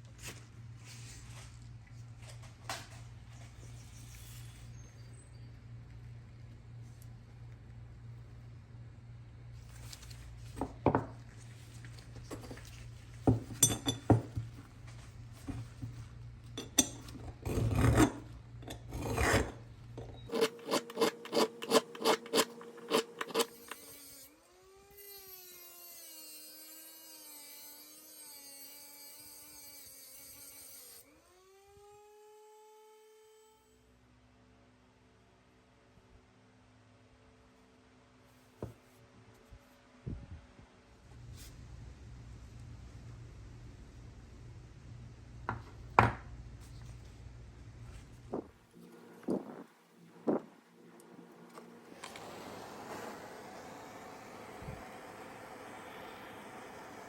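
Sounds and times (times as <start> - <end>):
hand tool scraping workpiece: 16.6 - 24.0.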